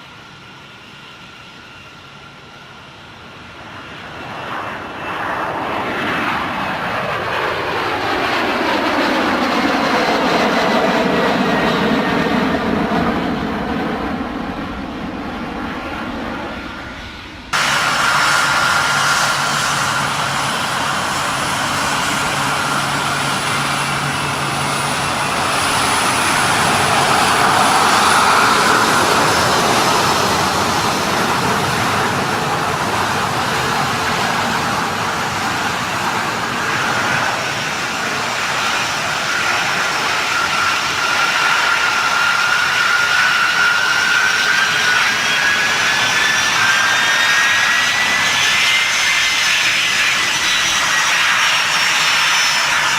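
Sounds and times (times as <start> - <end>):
aircraft turbine engines running: 0.0 - 52.9
high turbine whine: 0.0 - 52.9.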